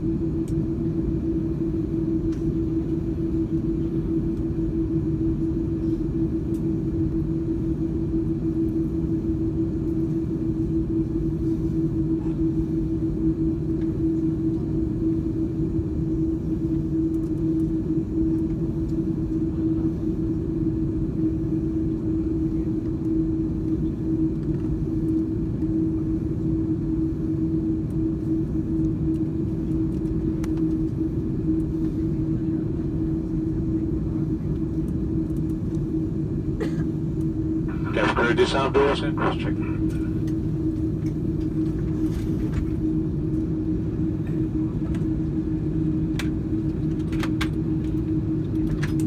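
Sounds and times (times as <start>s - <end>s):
airplane cabin low rumble: 0.0s - 49.0s
steady mid-pitched hum: 35.1s - 41.7s.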